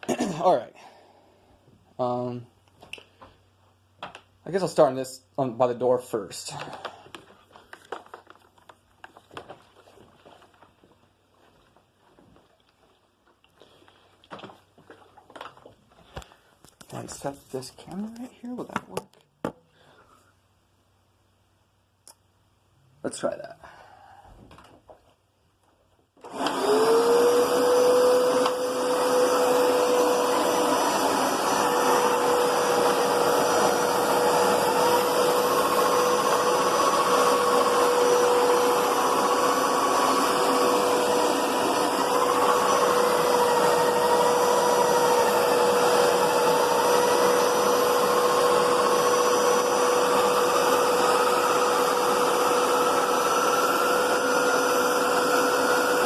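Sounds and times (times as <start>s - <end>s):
carpet cleaner motor whine: 26.2s - 56.0s.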